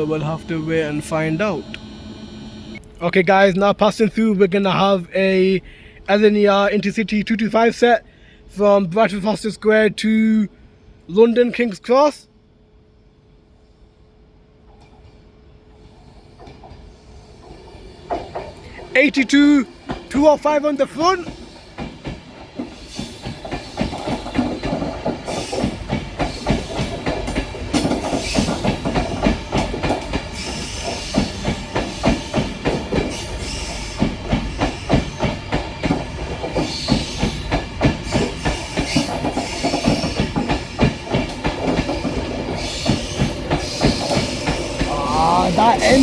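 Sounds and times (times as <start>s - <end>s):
train wheels clickety-clack: 14.7s - 46.0s.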